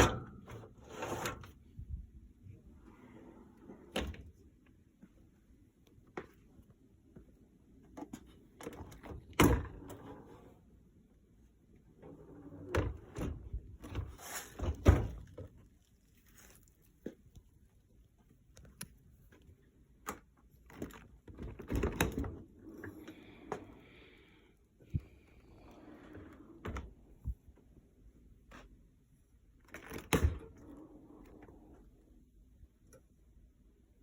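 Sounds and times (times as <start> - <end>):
dishwasher door and racks clattering: 0.0 - 1.5.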